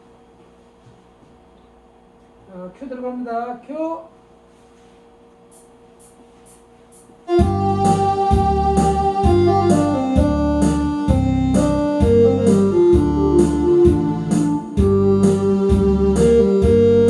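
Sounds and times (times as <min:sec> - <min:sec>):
faint room hum: 0:00.0 - 0:17.0
electronic keyboard melody: 0:07.3 - 0:17.0
steady bass beat: 0:07.3 - 0:17.0.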